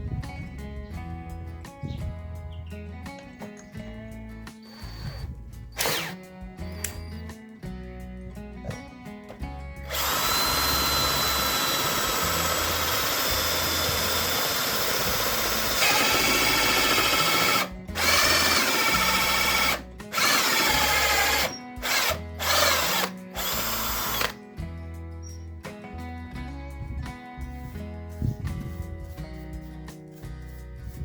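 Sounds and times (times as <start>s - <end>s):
power drill whining: 4.6s - 7.3s, 9.8s - 24.4s.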